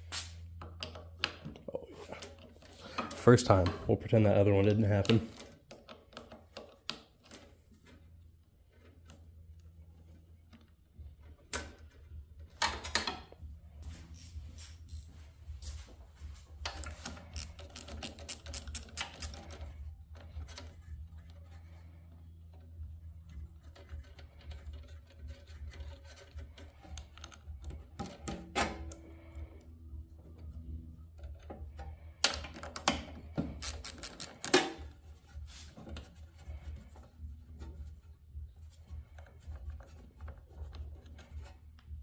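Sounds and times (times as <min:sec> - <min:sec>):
metal tools clinking: 0:13.8 - 0:15.8, 0:16.7 - 0:19.5, 0:33.6 - 0:34.8
socket wrench ratchet clicking: 0:16.7 - 0:19.6, 0:33.5 - 0:34.8.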